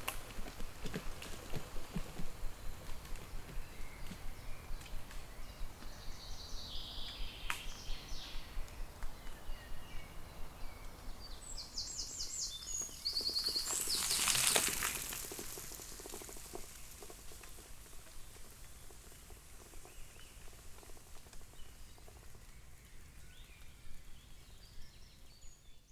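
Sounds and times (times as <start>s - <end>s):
small birds singing: 0.0s - 25.9s.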